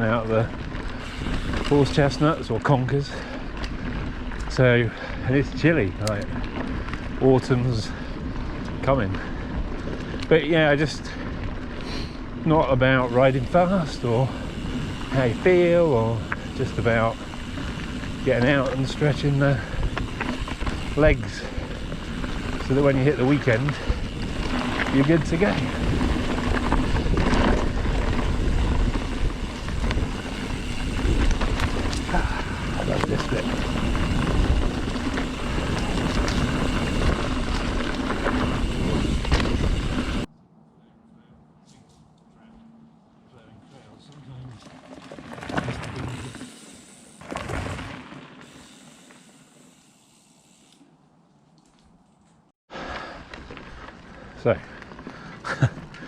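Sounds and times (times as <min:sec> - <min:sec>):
wind buffeting microphone: 0:00.0 - 0:01.7, 0:13.8 - 0:40.3
bike clicks and rattles: 0:00.0 - 0:40.3, 0:44.0 - 0:56.0
tyres rolling on dirt trail: 0:00.0 - 0:40.3, 0:42.4 - 0:56.0.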